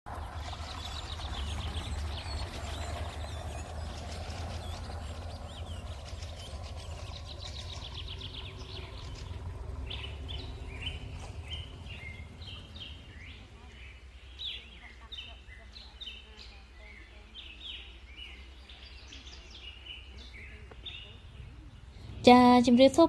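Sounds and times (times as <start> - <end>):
small birds chirping and trilling: 0.1 - 23.0
steady low rumble: 0.1 - 23.0.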